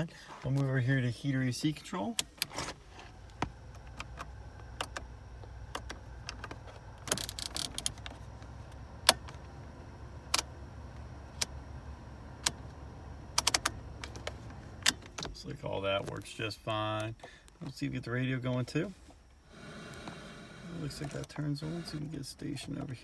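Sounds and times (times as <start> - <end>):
steady low hum: 0.0 - 23.0
car control knobs clicking: 2.2 - 9.6, 10.2 - 15.4.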